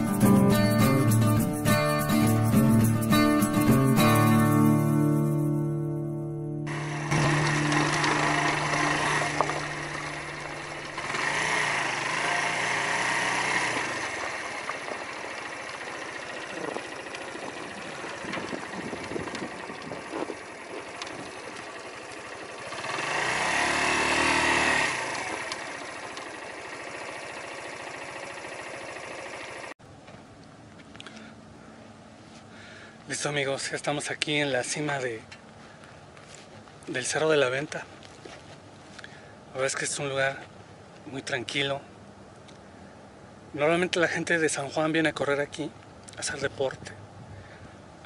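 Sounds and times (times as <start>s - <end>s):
motorcycle engine running: 6.6s - 29.8s.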